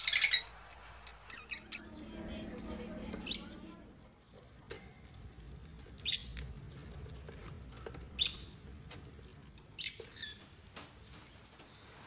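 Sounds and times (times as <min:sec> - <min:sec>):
high bird chirps: 0:00.0 - 0:02.3
faint low rumble: 0:00.4 - 0:07.7.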